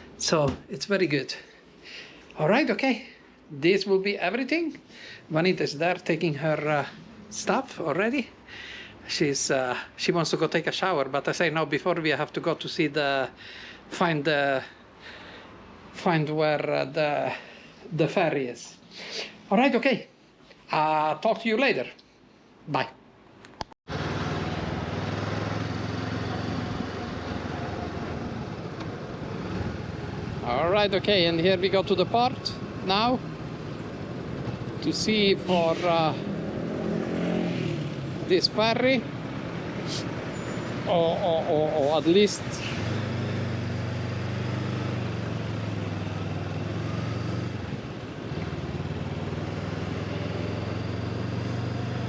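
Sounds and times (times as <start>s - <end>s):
motorcycle engine running: 23.9s - 34.8s, 42.9s - 52.0s.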